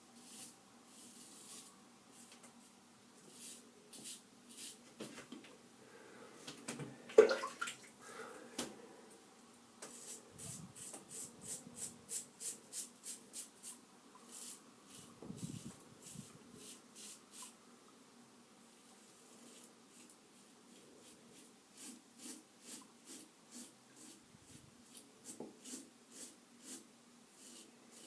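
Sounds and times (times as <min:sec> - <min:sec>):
water splash: 0:07.2 - 0:07.9.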